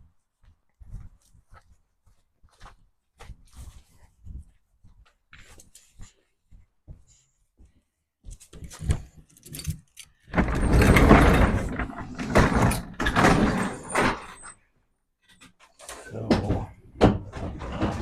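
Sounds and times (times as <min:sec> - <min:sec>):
sliding door rattling scrape: 0:10.3 - 0:14.5, 0:17.1 - 0:18.0.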